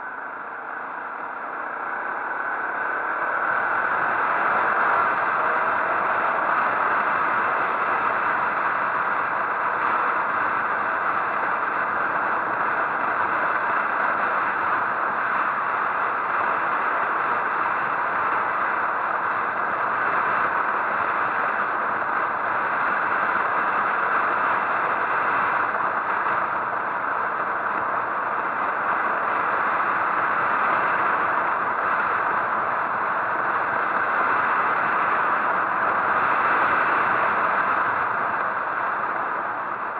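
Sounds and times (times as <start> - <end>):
motorcycle road noise: 0.5 - 11.6
wind rushing on microphone: 0.6 - 39.9.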